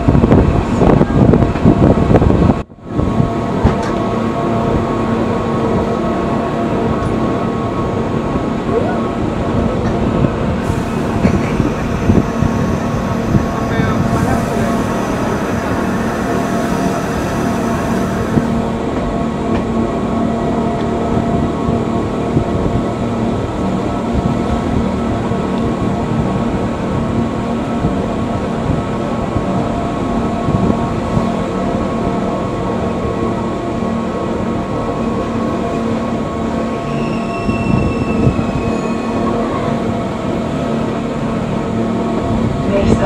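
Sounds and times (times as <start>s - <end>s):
train rumbling on rails: 0.0s - 43.0s
wheel squeal: 36.8s - 39.5s.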